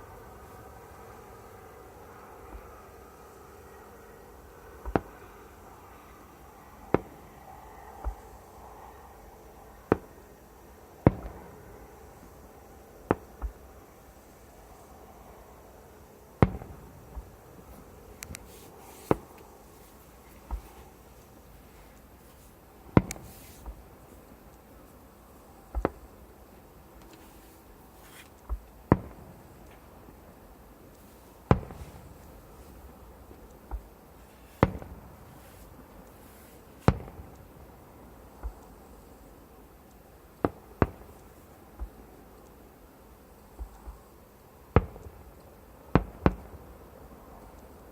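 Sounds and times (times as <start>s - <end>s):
fireworks bangs: 4.4s - 13.9s, 16.3s - 30.4s, 31.0s - 37.8s
fireworks bangs with echo: 11.0s - 12.2s, 16.4s - 19.4s, 22.8s - 24.4s, 25.7s - 26.3s, 31.4s - 33.9s, 34.5s - 35.7s, 36.8s - 37.6s, 45.9s - 46.7s.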